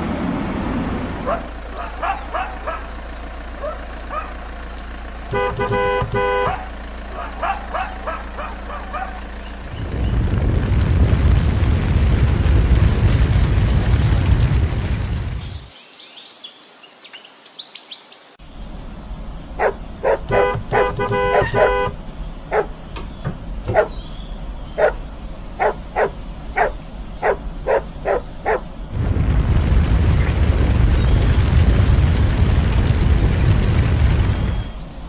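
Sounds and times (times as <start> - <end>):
dog barking: 1.2 - 2.9, 3.6 - 4.4, 5.4 - 9.2, 19.6 - 22.8, 23.7 - 24.0, 24.8 - 25.0, 25.6 - 28.7
loud low rumble: 18.6 - 35.0.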